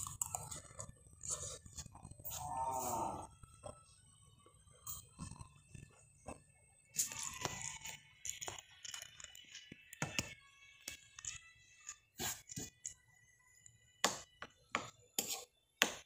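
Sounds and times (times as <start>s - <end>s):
chewing and mouth sounds: 0.0s - 2.4s.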